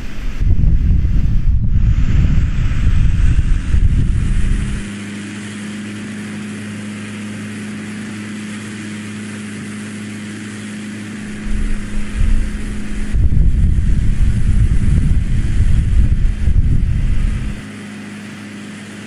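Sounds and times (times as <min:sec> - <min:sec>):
wind buffeting microphone: 0:00.0 - 0:04.9, 0:11.2 - 0:17.6
steady engine hum: 0:00.0 - 0:19.0.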